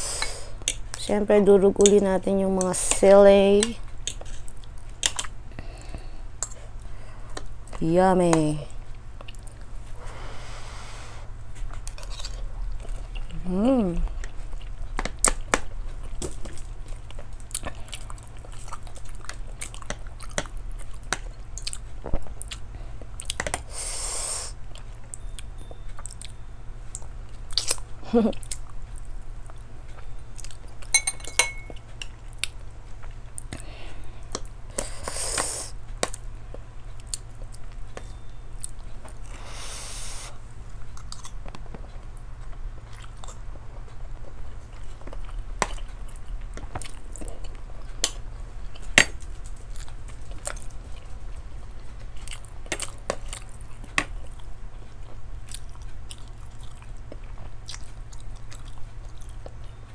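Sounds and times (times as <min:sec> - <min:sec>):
person chewing: 0:03.8 - 0:07.6, 0:11.0 - 0:23.7, 0:24.3 - 0:36.2, 0:40.9 - 0:59.8
airy hisses: 0:10.0 - 0:11.3, 0:39.4 - 0:40.4
cutlery clinking on plate: 0:30.9 - 0:31.8.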